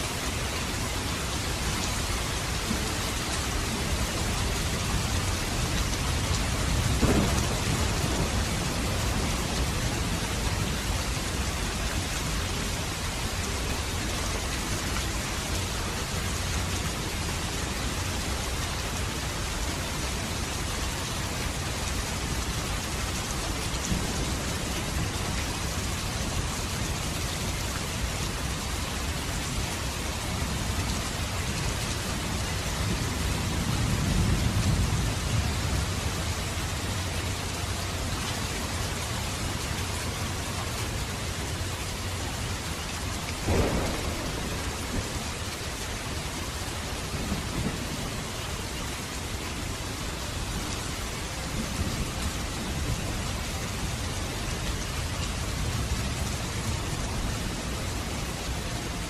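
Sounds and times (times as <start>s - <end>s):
steady rain: 0.0s - 59.0s
thunder crack and rumble: 2.4s - 12.2s, 23.5s - 26.4s, 43.4s - 48.3s.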